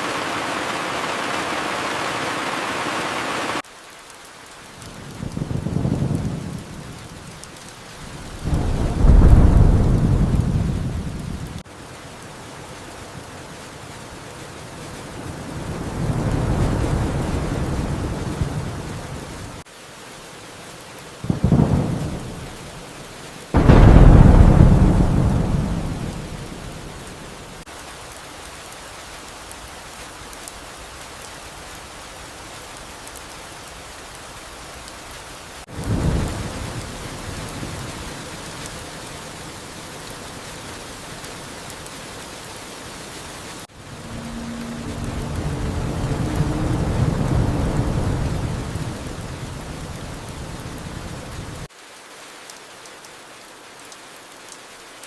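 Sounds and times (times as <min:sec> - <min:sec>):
steady rain: 0:00.0 - 0:55.0
thunder rumbling and cracking: 0:04.8 - 0:19.6, 0:21.3 - 0:22.8, 0:23.6 - 0:27.6, 0:35.7 - 0:38.7, 0:43.7 - 0:51.7.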